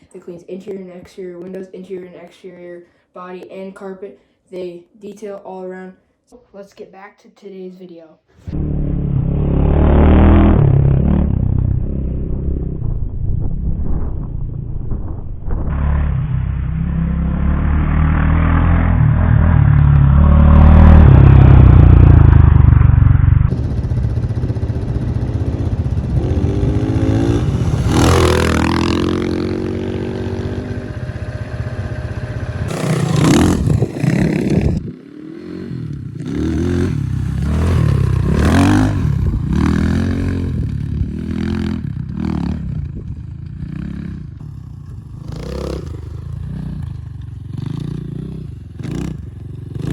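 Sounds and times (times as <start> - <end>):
dirt bike engine revving: 8.4 - 12.8, 15.7 - 49.9.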